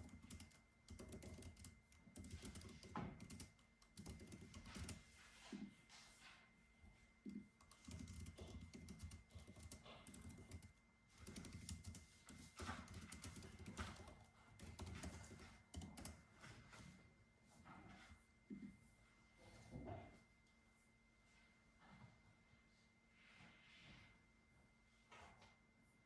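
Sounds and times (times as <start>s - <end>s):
computer keyboard typing: 0.0s - 5.0s, 7.3s - 16.3s.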